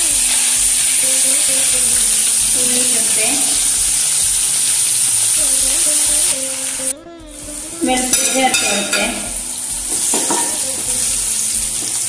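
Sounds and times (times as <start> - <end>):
vegetables sizzling in hot oil: 0.0 - 6.9, 7.6 - 12.0.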